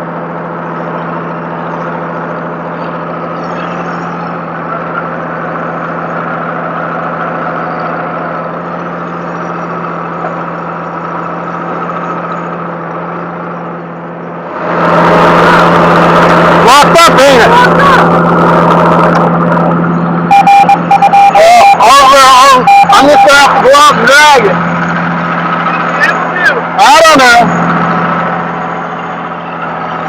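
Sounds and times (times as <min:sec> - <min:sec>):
vehicle engine idling: 0:00.0 - 0:30.0
loud rush of noise: 0:11.3 - 0:30.0.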